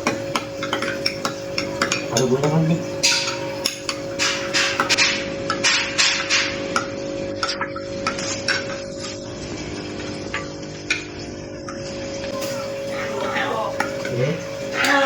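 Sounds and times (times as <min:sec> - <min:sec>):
spoon stirring in a glass: 0:00.0 - 0:04.0.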